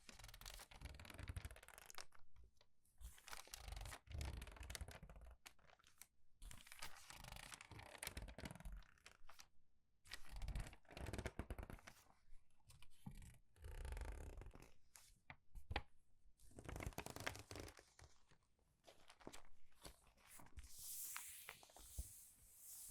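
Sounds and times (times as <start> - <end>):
crinkly paper pages turning: 18.9 - 22.2.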